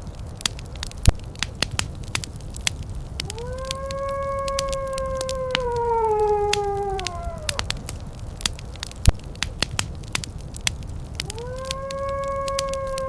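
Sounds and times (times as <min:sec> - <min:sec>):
wood fire crackling: 0:00.0 - 0:13.0
long howl: 0:03.2 - 0:08.4, 0:11.1 - 0:13.0.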